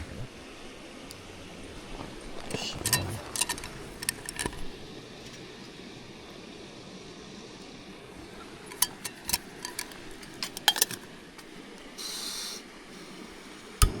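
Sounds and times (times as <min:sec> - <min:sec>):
short hiss: 0:11.8 - 0:13.2.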